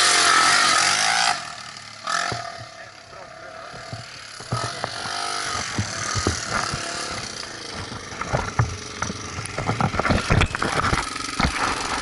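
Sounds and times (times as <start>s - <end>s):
motorcycle engine running: 0.0s - 12.0s
short knocks and rattles: 3.7s - 11.9s.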